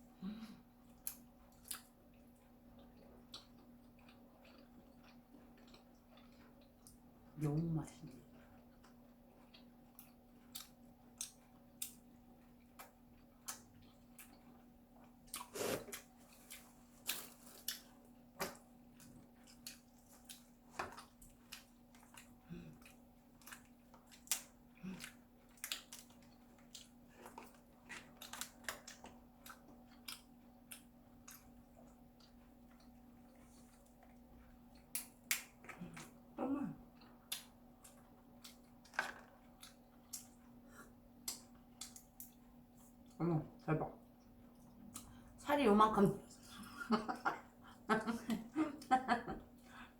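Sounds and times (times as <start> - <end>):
faint steady hum: 0.0 - 49.9
chewing lobster shell crackles: 8.5 - 36.2.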